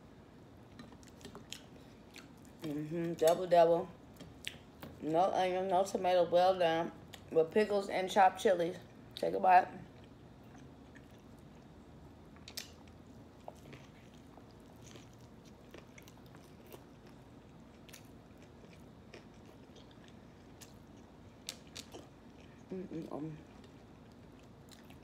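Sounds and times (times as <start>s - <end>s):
faint chewing mouth sounds: 0.7s - 2.8s, 9.8s - 25.0s.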